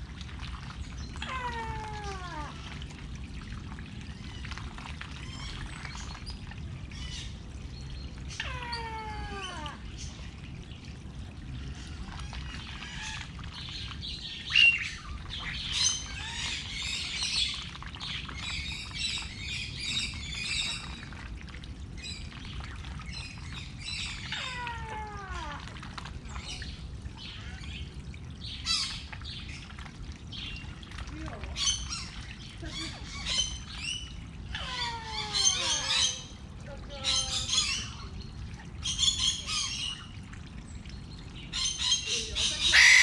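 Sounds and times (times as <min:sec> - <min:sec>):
birds chirping and calling: 0:11.6 - 0:21.1, 0:22.0 - 0:25.6, 0:26.2 - 0:43.0.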